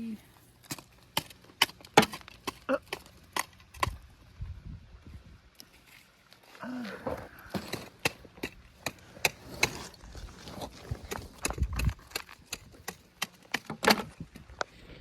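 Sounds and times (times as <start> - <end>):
tool scraping through clay: 7.5 - 14.2.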